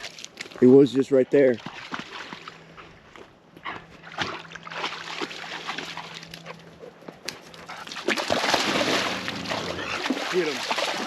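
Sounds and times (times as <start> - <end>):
water sloshing and splashing: 1.6 - 2.8, 3.9 - 6.8, 7.5 - 11.0.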